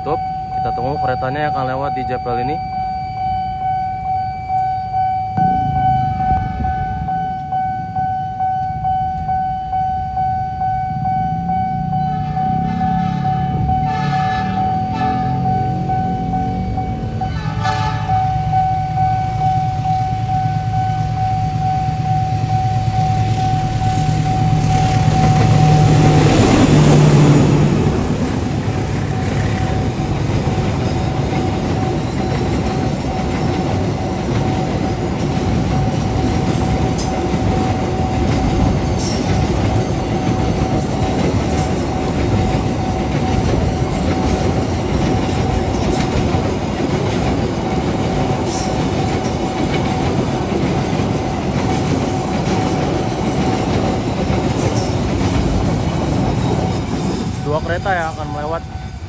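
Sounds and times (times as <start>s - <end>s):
steady high tone: 0.0s - 46.5s, 57.2s - 59.0s
diesel locomotive engine drone: 0.0s - 59.0s
freight wagons rumbling past: 11.0s - 59.0s
wheels clacking over rail joints: 24.4s - 58.2s.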